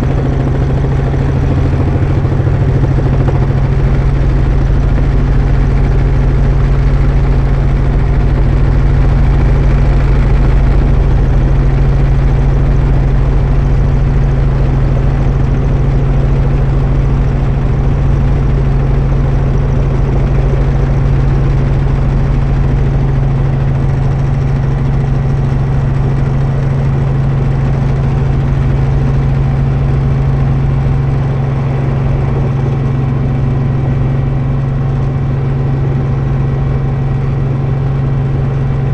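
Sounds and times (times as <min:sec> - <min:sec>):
helicopter engine and rotor: 0:00.0 - 0:38.9.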